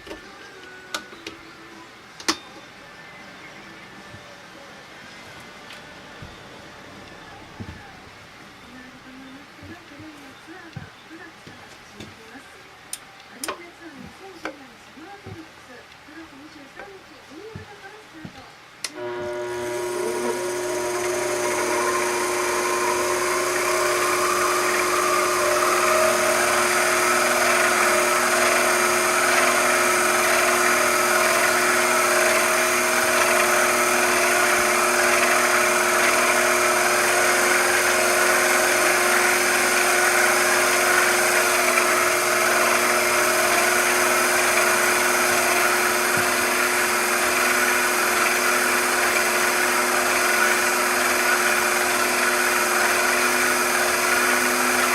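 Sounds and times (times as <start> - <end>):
machine tool motor humming: 18.9 - 54.9.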